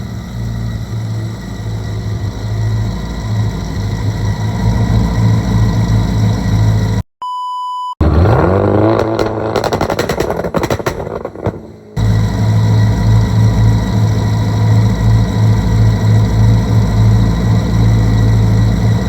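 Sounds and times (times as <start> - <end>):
car engine idling and revving: 0.0 - 7.0, 8.0 - 19.0
sharp electronic beep: 7.2 - 8.6.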